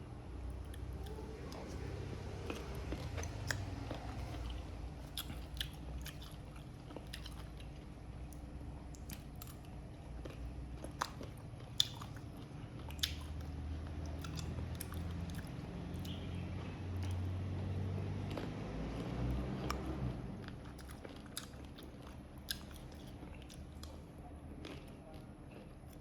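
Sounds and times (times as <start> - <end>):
person crunching on fruit: 2.5 - 16.3, 18.3 - 24.0.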